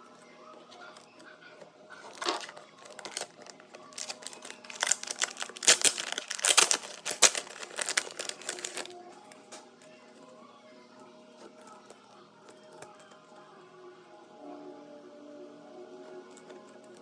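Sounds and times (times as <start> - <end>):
packaging crinkling by hand: 1.9 - 9.1.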